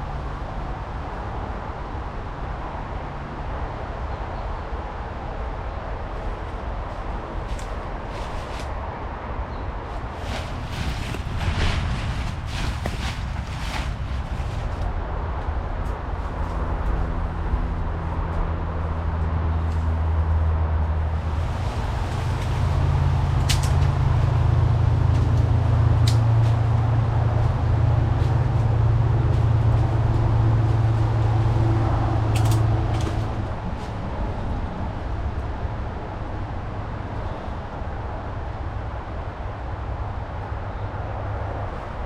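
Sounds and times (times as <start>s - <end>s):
vehicle engine droning: 9.8s - 41.7s.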